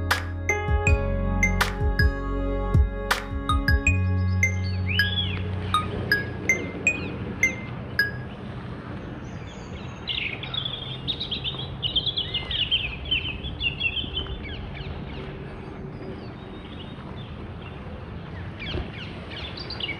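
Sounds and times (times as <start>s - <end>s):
small bird twittering song: 3.8s - 8.4s, 9.1s - 17.8s, 18.4s - 19.9s.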